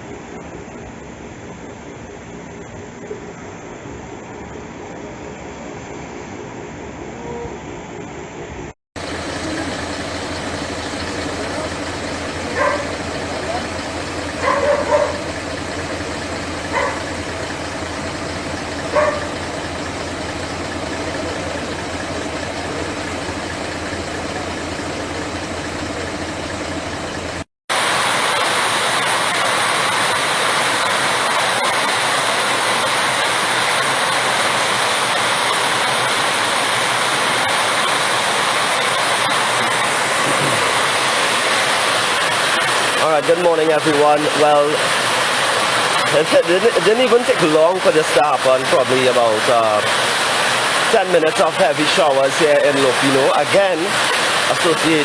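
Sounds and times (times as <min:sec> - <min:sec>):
heavy rain: 0:09.0 - 0:55.0
running floodwater: 0:09.0 - 0:55.0.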